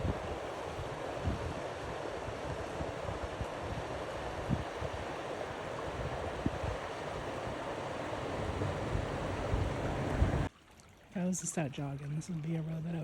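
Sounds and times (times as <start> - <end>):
wind buffeting microphone: 0.0 - 5.2, 5.8 - 10.5
river water rushing: 0.0 - 13.0.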